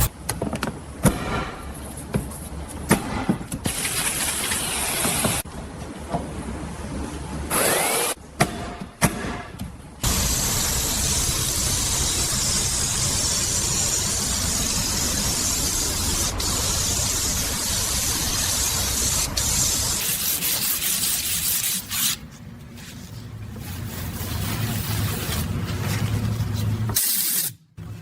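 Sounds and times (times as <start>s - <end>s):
compressed-air tool hissing: 10.0s - 20.2s.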